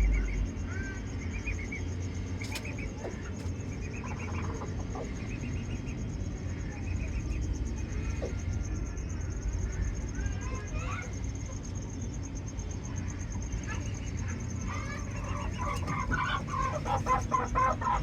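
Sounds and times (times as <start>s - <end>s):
low rumble: 0.0s - 2.4s
birds chirping: 0.0s - 18.0s.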